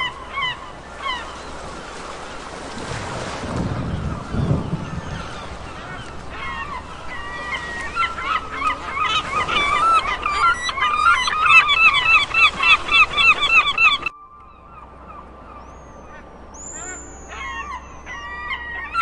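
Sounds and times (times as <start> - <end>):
geese honking: 4.0 - 19.0.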